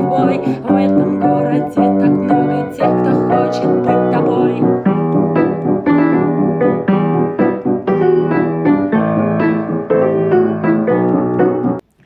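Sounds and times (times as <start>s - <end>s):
piano chords: 0.0s - 11.8s.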